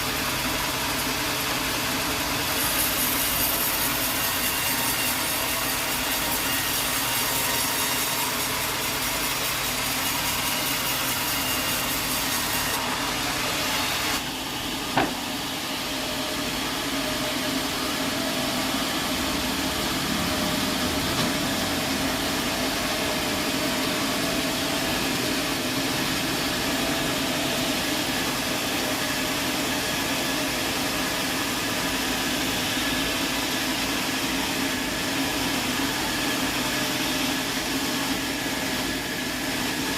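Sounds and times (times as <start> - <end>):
saw cutting through wood: 0.0 - 39.9
sharp knock: 14.9 - 15.2.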